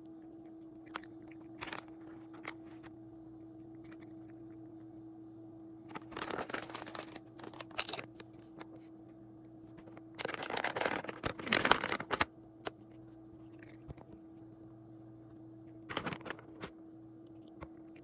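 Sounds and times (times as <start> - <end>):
low hum: 0.0 - 18.0
packaging crinkling and rustling: 1.5 - 2.9, 5.9 - 8.9, 9.7 - 12.8, 15.8 - 16.7.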